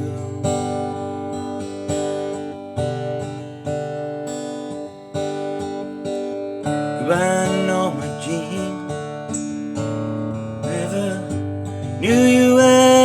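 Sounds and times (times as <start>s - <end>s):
acoustic guitar strumming: 0.0s - 13.0s
person singing: 12.0s - 13.0s.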